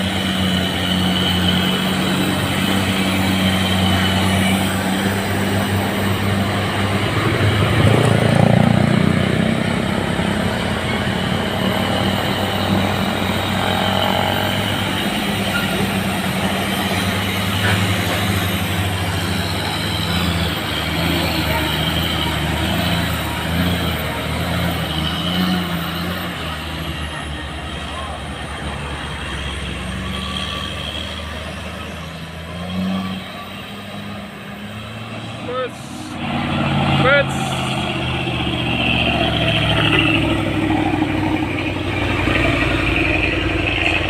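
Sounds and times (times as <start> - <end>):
steady whine: 0.0 - 19.8
diesel truck engine droning: 0.0 - 44.0.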